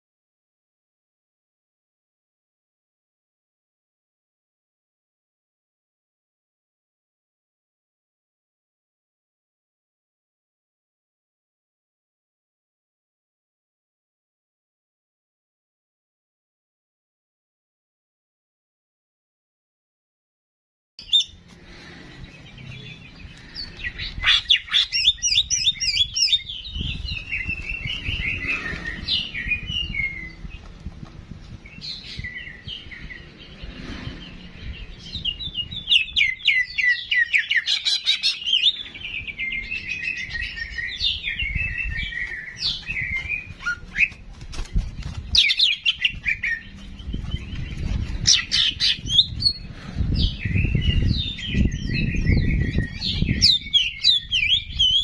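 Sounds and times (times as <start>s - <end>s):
songbird trilling and warbling: 21.0s - 30.6s, 31.7s - 44.2s, 44.8s - 55.0s.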